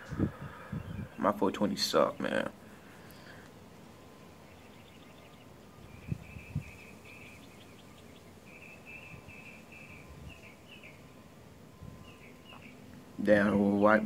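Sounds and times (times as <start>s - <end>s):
small bird chirping: 4.4s - 11.2s, 11.8s - 13.0s.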